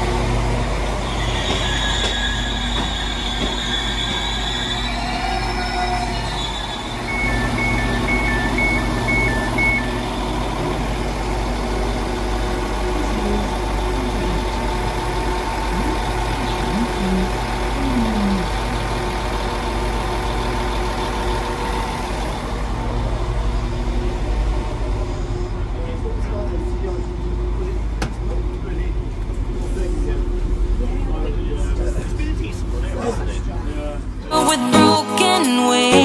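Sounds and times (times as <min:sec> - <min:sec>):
train engine idling: 0:00.0 - 0:35.8
two-tone door warning beeps: 0:06.3 - 0:10.2.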